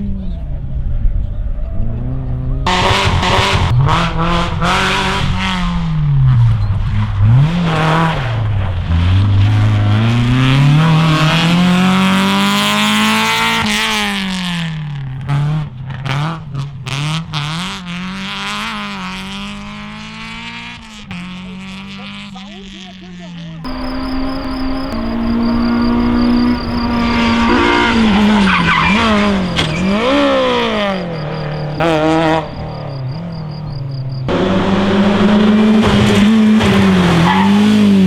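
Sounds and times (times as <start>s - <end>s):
rally car engine revving: 0.0s - 22.2s, 23.7s - 38.0s
exhaust pops: 23.7s - 37.3s.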